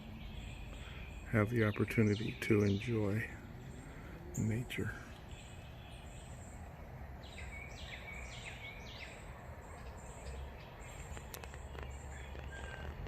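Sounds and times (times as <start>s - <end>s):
low outdoor rumble: 0.0s - 13.0s
songbird whistling: 11.8s - 13.0s.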